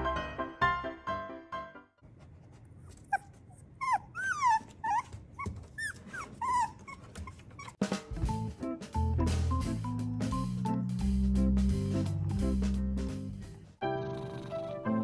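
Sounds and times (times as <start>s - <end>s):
dog whimpering: 2.9s - 7.8s.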